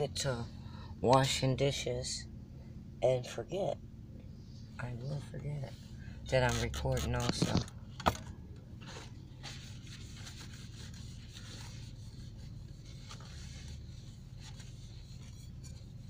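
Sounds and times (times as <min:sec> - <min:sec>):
low hum: 0:00.0 - 0:16.0
paper towel wiping dish: 0:08.8 - 0:16.0.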